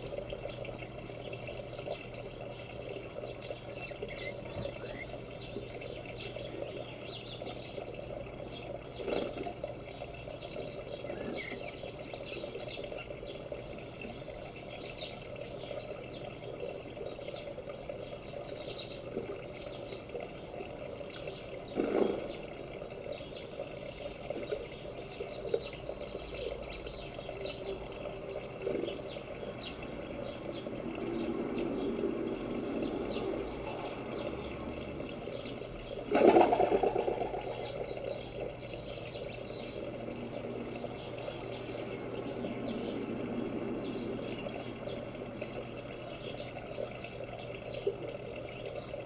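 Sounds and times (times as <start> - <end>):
small birds chirping: 0.0 - 49.0
steady low rush of noise: 29.1 - 47.2.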